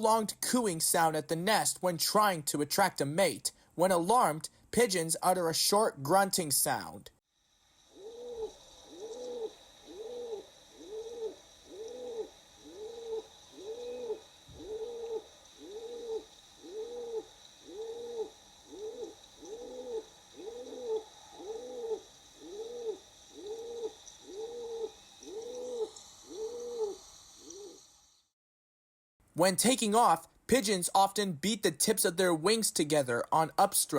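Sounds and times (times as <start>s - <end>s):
pigeon cooing: 7.9s - 27.8s.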